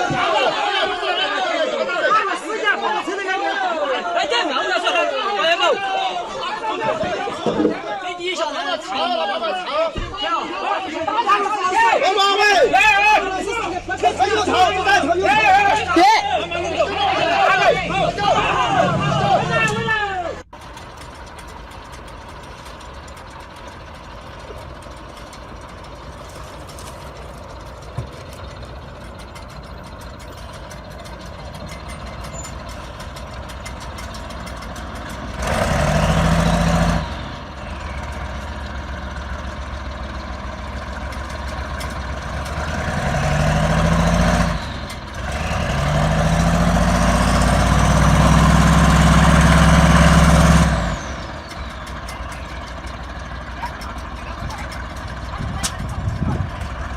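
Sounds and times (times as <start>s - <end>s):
truck engine revving: 12.0s - 56.9s.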